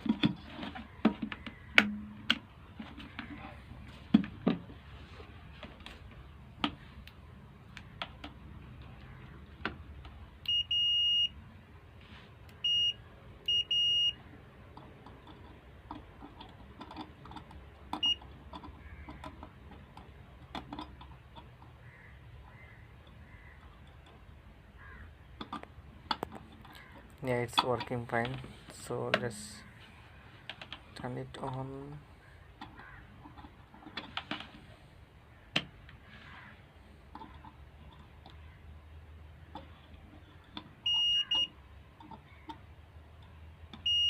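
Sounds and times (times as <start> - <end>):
clicks and taps of handling parts: 0.0 - 4.8, 5.6 - 11.3, 12.4 - 21.8, 25.3 - 29.4, 30.4 - 31.8, 32.5 - 34.7, 35.4 - 36.0, 37.0 - 44.0
multimeter beeping: 10.4 - 11.4, 12.5 - 14.3, 17.9 - 18.4, 40.8 - 41.6, 43.8 - 44.0.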